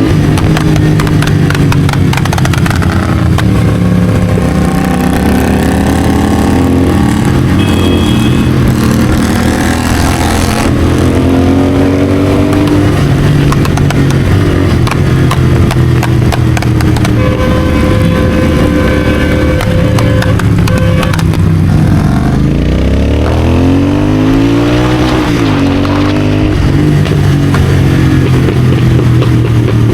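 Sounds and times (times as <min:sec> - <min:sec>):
motorcycle engine running: 0:00.0 - 0:29.9
exhaust cracks and pops: 0:00.2 - 0:03.6, 0:12.5 - 0:17.3.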